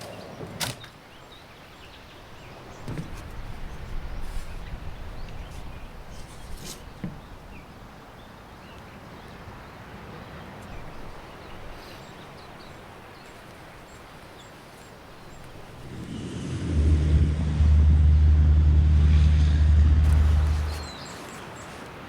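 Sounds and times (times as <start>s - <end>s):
coastal background noise: 0.0s - 22.0s.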